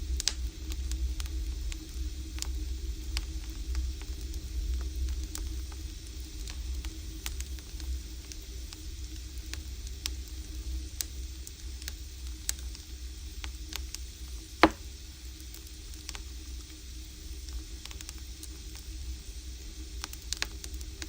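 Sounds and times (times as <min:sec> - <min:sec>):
firewood crackling and popping: 0:14.6 - 0:14.8.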